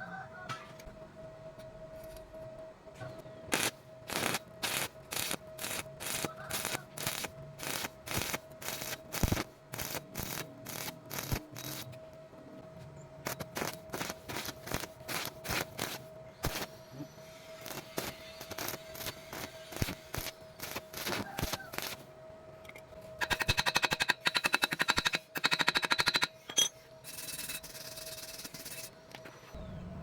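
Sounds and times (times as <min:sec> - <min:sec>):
welding arc crackling: 0:03.5 - 0:11.9, 0:13.2 - 0:22.1.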